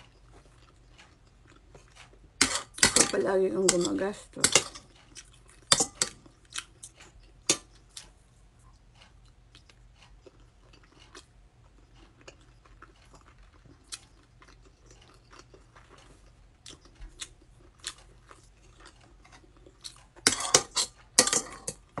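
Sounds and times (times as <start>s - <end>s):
quiet chewing with mouth clicks: 0.0s - 2.4s, 4.7s - 22.0s
metal spoon scraping a plate: 1.8s - 5.0s, 5.7s - 6.2s, 20.2s - 22.0s.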